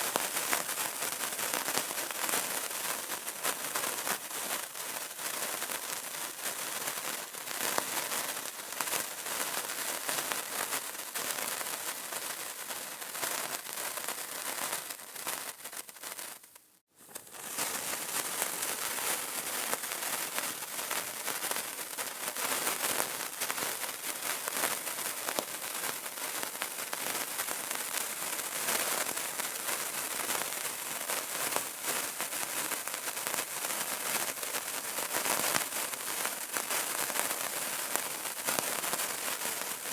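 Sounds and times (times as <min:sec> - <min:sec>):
candle crackling: 0:00.0 - 0:30.9.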